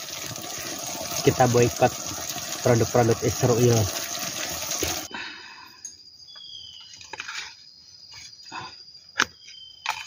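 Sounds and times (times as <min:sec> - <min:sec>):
forest insect calls: 0:04.5 - 0:10.0.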